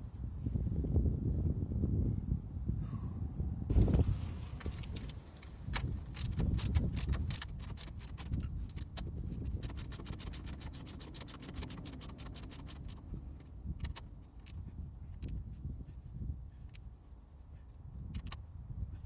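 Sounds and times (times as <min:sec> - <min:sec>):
ratchet wrench clicking: 0:04.6 - 0:15.4, 0:18.2 - 0:18.4.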